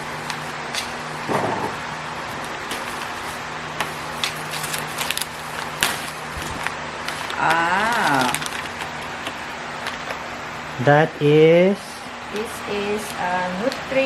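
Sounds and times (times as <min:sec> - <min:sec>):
electric fan whirring: 0:00.0 - 0:14.0
package crinkling: 0:03.8 - 0:10.2.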